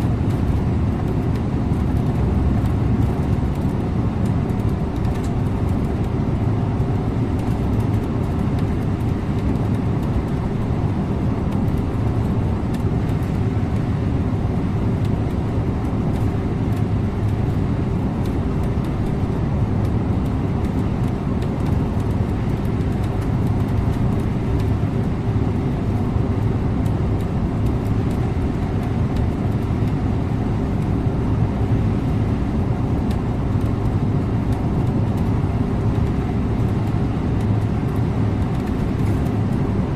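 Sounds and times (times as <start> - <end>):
bus engine drone: 0.0 - 39.9
road and tyre noise: 0.0 - 39.9.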